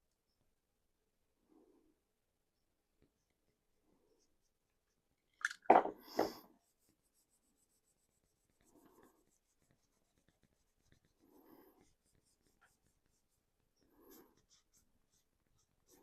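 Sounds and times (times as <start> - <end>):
paintbrush scrubbing plastic: 6.1 - 16.0.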